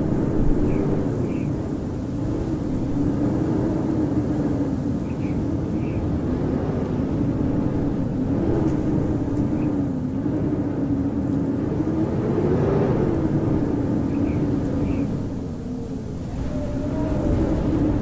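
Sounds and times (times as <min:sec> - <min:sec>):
howling wind: 0:00.0 - 0:18.0.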